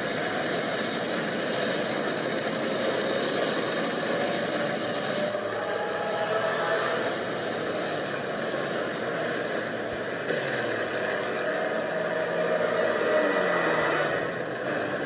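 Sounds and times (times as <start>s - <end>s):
propeller airplane engine running: 0.0s - 5.5s, 7.0s - 13.4s.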